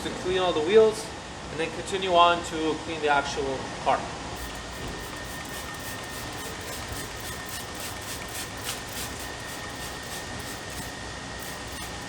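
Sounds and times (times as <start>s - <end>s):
mechanical hum with high whine: 0.0s - 12.0s
hissing spray bursts: 4.4s - 12.0s.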